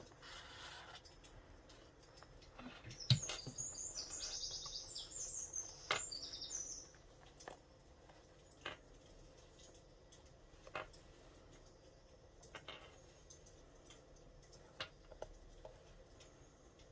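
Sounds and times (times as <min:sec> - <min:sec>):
small bird twittering: 0:02.6 - 0:07.0.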